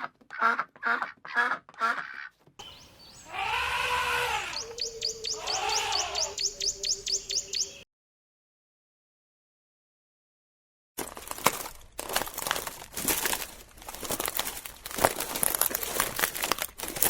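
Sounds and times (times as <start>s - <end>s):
duck-like quacking calls: 0.0s - 2.4s, 3.3s - 6.4s
long rising and falling calls: 2.6s - 7.8s
high bird chirps: 2.6s - 7.9s.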